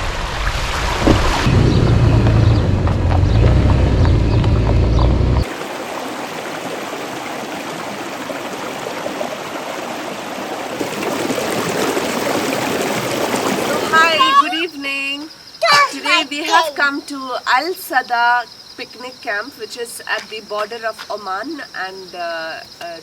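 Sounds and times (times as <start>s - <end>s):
loud low rumble: 0.0s - 5.4s
stream rushing and gurgling: 0.0s - 14.7s.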